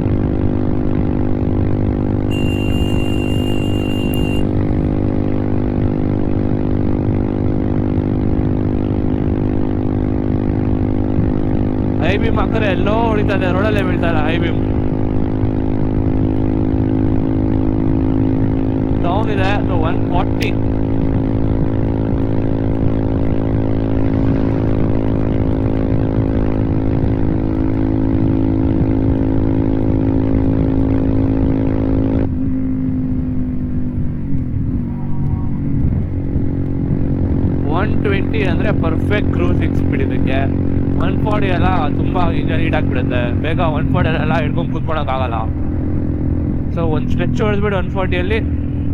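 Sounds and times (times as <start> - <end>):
motorcycle engine at high revs: 0.0 - 48.9.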